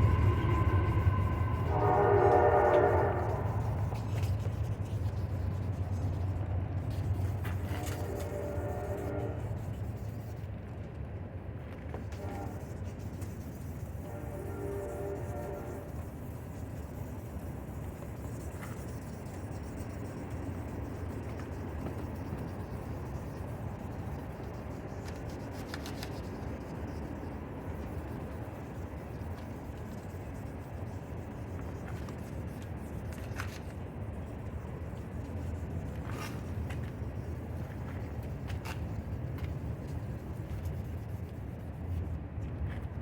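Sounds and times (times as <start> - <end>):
low rumble: 0.0 - 7.7
sandpaper rubbing on plastic: 2.0 - 10.6, 12.0 - 42.2.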